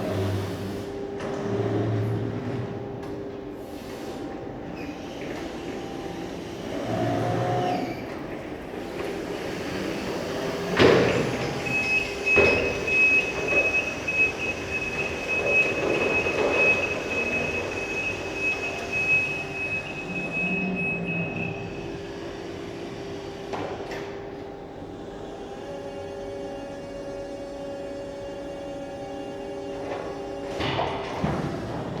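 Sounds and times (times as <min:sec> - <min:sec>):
machine humming: 0:10.3 - 0:22.8.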